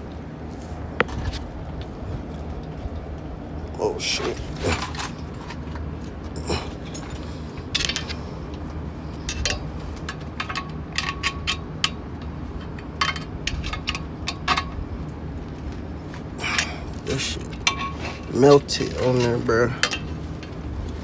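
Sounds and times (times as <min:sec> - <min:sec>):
hand tools clinking on metal: 0:04.0 - 0:08.6, 0:16.4 - 0:20.7.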